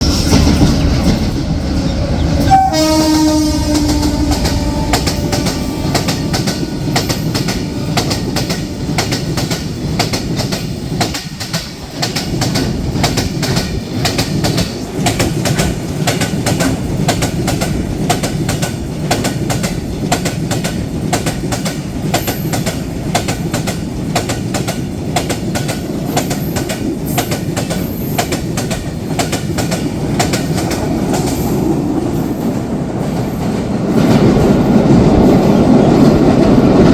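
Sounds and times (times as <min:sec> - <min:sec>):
train wheels clattering: 0:00.0 - 0:36.9
train horn blast: 0:01.7 - 0:10.4.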